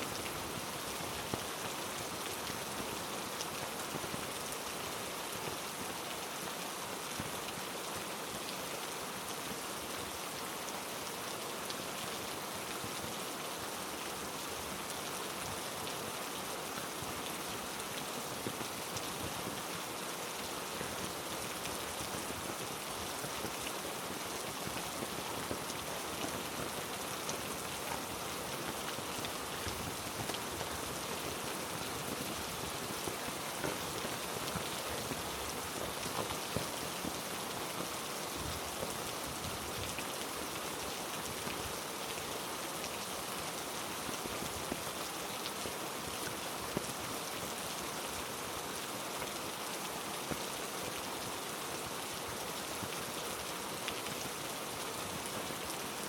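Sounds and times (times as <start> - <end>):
heavy rain on foliage: 0.0 - 56.0.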